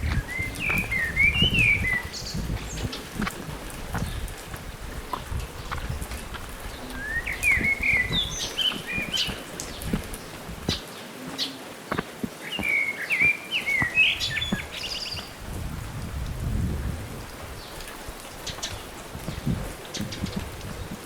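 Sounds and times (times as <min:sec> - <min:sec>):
songbird whistling: 0:00.1 - 0:02.4, 0:07.0 - 0:09.5, 0:12.4 - 0:15.3.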